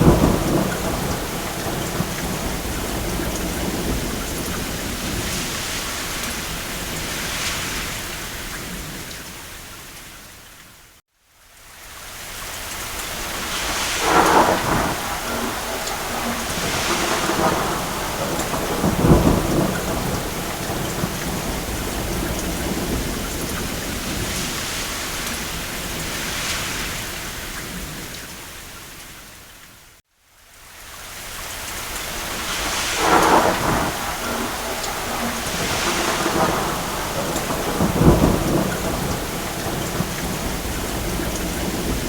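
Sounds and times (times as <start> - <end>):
distant thunder rumbling: 0.0 - 7.4, 13.4 - 26.5, 32.2 - 42.0
steady rain falling: 0.0 - 42.0.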